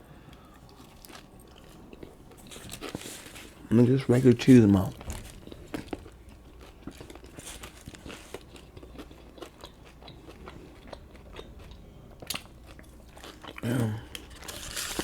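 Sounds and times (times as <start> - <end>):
person chewing sandwich: 0.2 - 15.0.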